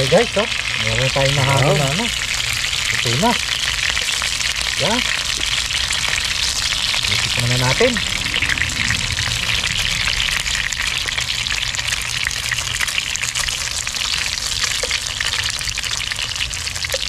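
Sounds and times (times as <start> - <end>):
dumplings sizzling with crackling pops: 0.0 - 6.8, 13.5 - 17.0.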